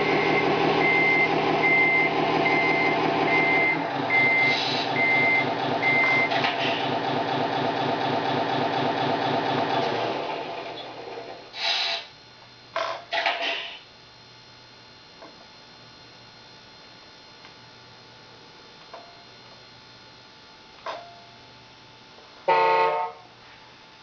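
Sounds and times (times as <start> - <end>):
low electrical hum: 10.4 - 24.0.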